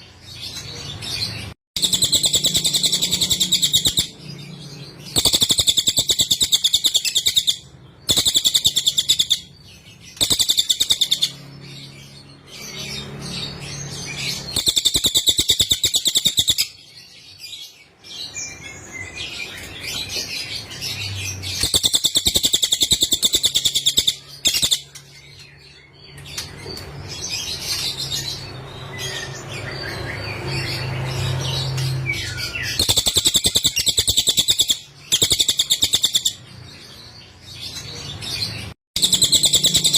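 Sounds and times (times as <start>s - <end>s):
soft bird chirps: 0.0s - 39.9s
bird trilling: 1.8s - 4.2s, 5.0s - 11.5s, 14.0s - 16.8s, 21.4s - 25.0s, 31.7s - 36.4s, 39.0s - 39.9s.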